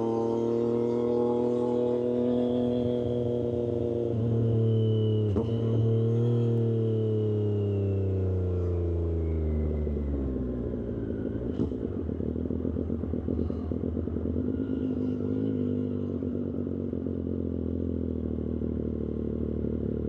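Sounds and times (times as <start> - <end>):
motorcycle engine rough idle: 8.7 - 20.0.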